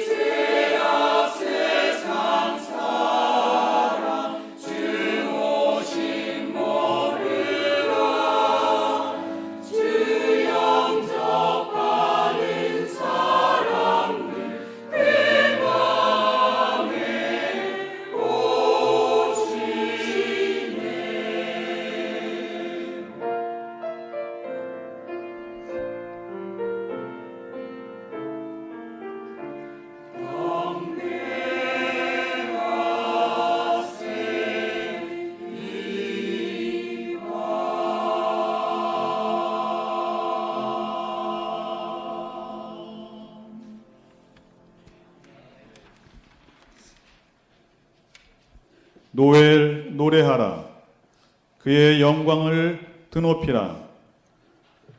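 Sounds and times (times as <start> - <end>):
church choir singing: 0.0 - 47.4, 51.6 - 54.9.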